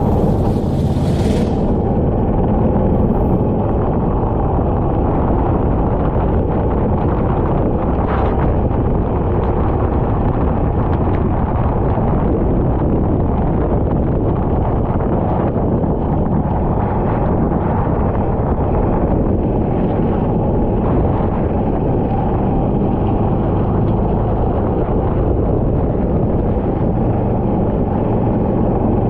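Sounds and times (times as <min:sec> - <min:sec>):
kart engine running: 0:00.0 - 0:05.3
wind buffeting on microphone: 0:00.0 - 0:29.0.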